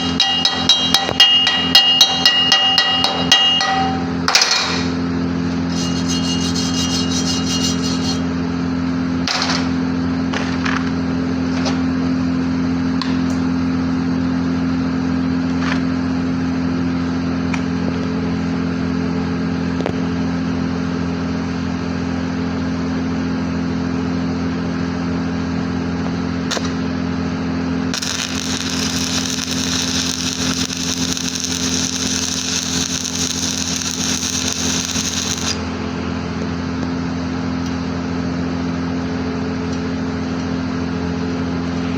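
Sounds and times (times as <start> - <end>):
welding machine hum: 0.0 - 1.2, 5.4 - 9.8, 26.4 - 36.9
welding arc crackling: 5.7 - 8.3, 27.9 - 35.7
sharp welding pops: 28.0 - 35.7.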